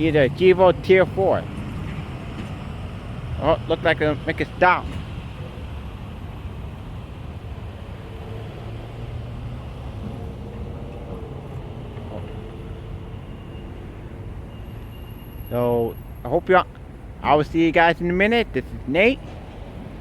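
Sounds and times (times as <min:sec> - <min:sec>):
train rumbling along track: 0:00.0 - 0:17.2, 0:17.8 - 0:20.0.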